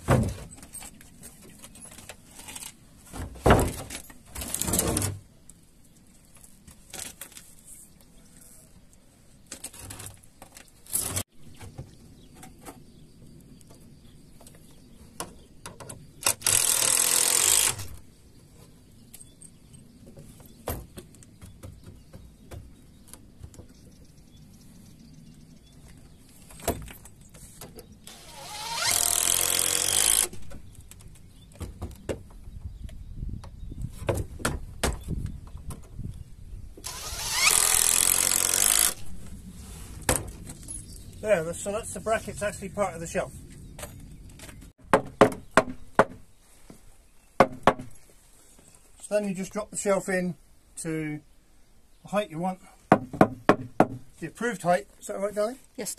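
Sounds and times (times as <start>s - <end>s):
power drill driving screws: 16.2s - 18.0s, 28.1s - 30.4s, 36.8s - 39.0s.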